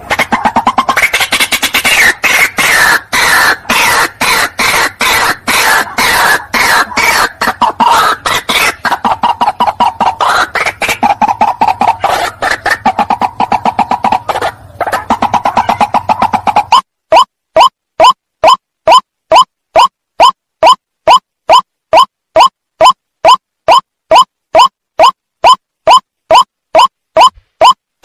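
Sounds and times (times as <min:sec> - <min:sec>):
waterhen calling: 0:00.0 - 0:16.8.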